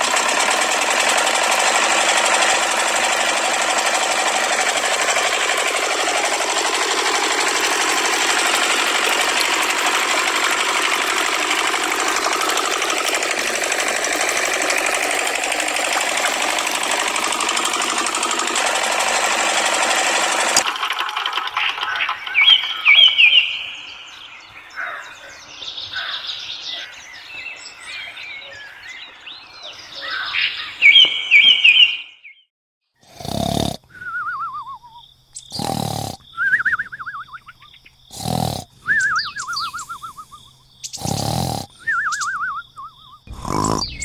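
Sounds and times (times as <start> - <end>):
birds chirping: 0.0 - 32.4, 33.9 - 44.0
cartoon snoring with whistle: 33.0 - 37.0, 38.1 - 42.5, 43.2 - 44.0.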